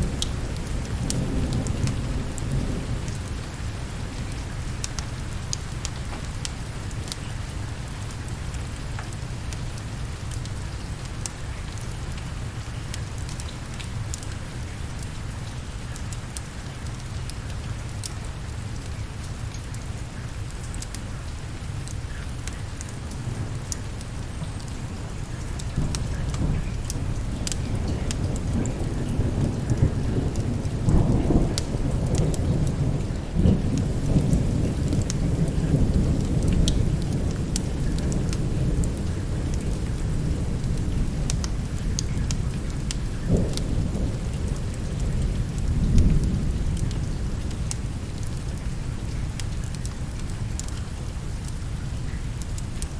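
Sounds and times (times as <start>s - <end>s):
steady rain: 0.0s - 52.9s
thunder rolling: 25.7s - 47.5s.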